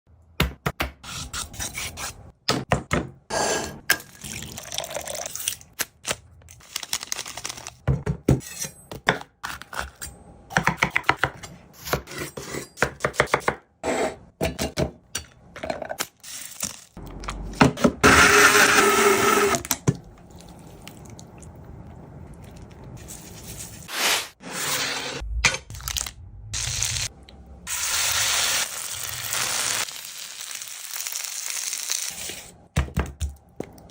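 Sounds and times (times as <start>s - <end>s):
chicken sizzling: 26.5s - 32.5s.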